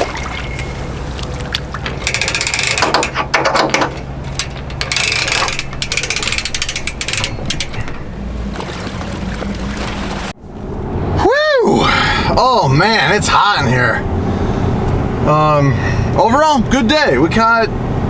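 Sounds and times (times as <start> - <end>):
engine idling: 0.0 - 10.3
ratchet clicking rapidly: 2.0 - 8.0.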